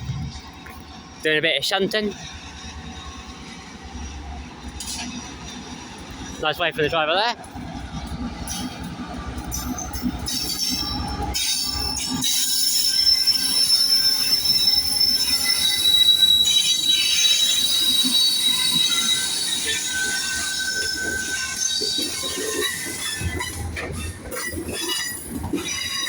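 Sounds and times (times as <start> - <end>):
train rumbling on track: 0.0 - 26.0
metallic wheel squeal: 8.5 - 26.0.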